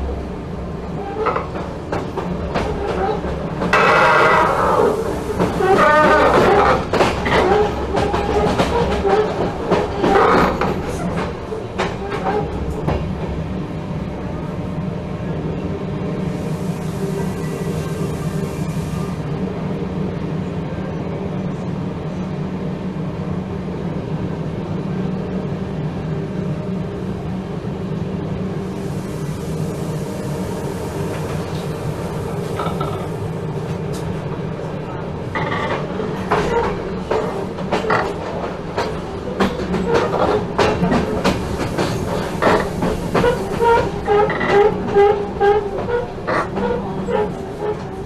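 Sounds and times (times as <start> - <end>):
electric locomotive hum: 0.0 - 48.0
train wheels knocking over rail joints: 1.3 - 12.3, 35.3 - 46.8.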